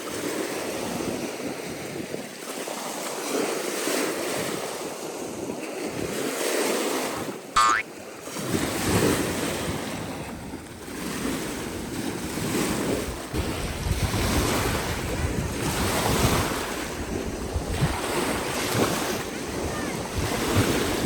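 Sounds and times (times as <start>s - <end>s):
waves breaking on beach: 0.0s - 21.0s
wind buffeting microphone: 4.3s - 7.4s, 8.1s - 21.0s.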